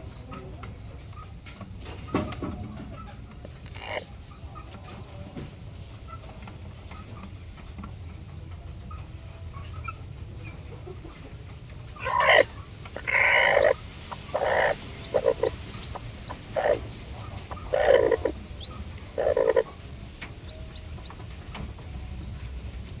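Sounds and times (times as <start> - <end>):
chicken calling: 3.6 - 4.1, 11.8 - 22.2.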